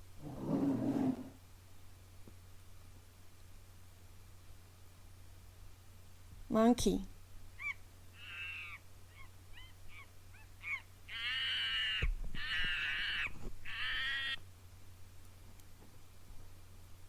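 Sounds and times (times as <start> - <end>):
loud monkey calls: 7.6 - 14.4
monkey chirps: 7.6 - 14.4.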